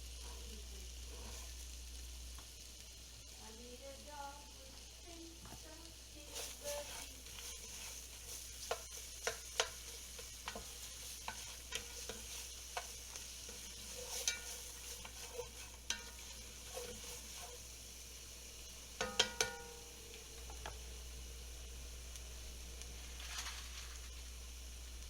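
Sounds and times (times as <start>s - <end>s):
frying hiss: 0.0s - 25.0s
utensil clinking against metal pot: 6.4s - 17.6s, 19.0s - 19.8s.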